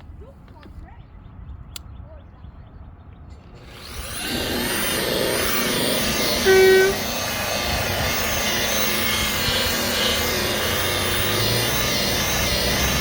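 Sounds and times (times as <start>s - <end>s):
rotary polisher whining: 3.5s - 13.0s
brief loud tone: 6.2s - 7.2s.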